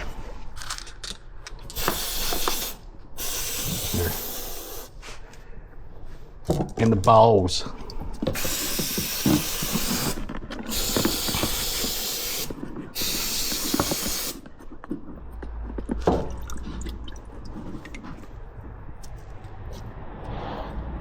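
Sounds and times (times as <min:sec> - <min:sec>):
metal parts clinking: 0:00.6 - 0:01.8
pressurised spray hissing: 0:01.8 - 0:05.0, 0:08.3 - 0:14.4.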